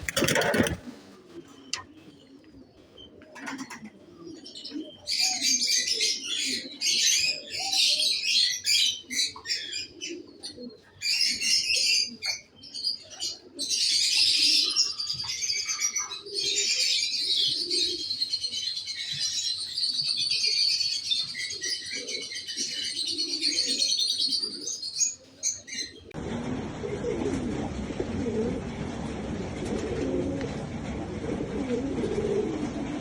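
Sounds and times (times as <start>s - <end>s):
pigeons cooing: 0.0s - 33.0s.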